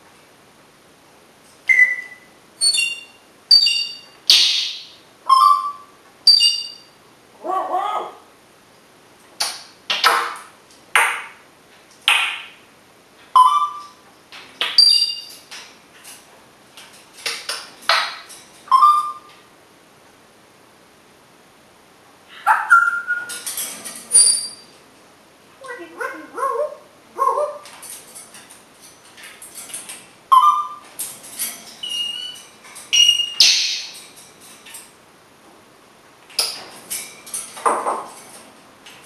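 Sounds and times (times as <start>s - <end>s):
parrot whistles and squawks: 1.7s - 4.4s, 5.3s - 6.8s, 13.4s - 14.0s, 14.8s - 15.3s, 18.7s - 19.3s, 22.4s - 23.4s, 30.3s - 30.8s, 31.8s - 34.0s.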